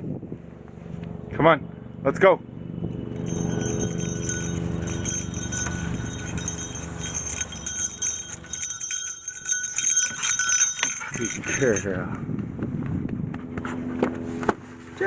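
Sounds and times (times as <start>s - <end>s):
low steady hum: 0.3s - 13.4s
light metallic jingling: 2.9s - 12.3s.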